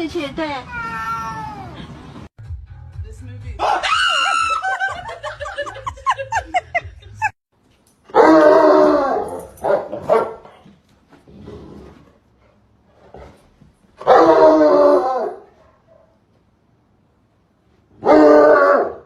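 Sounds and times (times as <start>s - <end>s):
dog barking and yipping: 8.1s - 10.6s, 14.0s - 16.2s.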